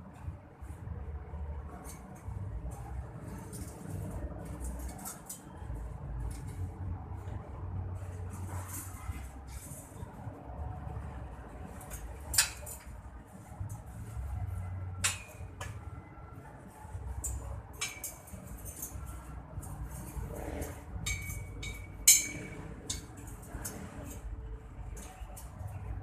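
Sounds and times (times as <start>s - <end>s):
sharp clinks and knocks: 17.2s - 24.2s.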